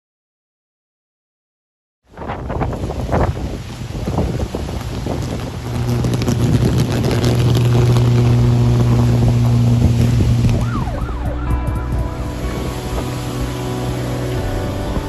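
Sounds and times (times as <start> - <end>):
power lines buzzing and crackling: 2.5 - 15.0
wailing tone: 7.7 - 15.0.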